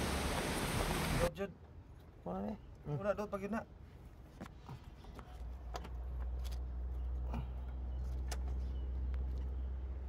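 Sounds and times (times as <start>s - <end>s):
low engine hum: 0.0s - 1.3s.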